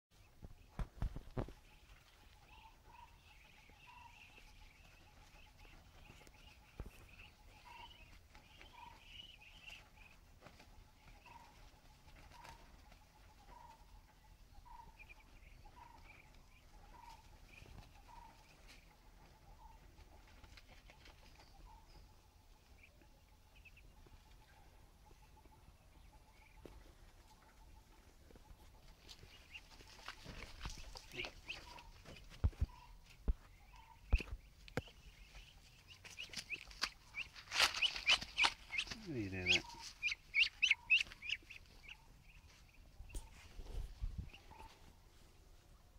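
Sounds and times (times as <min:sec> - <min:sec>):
bird chirps: 0:00.2 - 0:45.0
high chattering bird calls: 0:29.3 - 0:44.8.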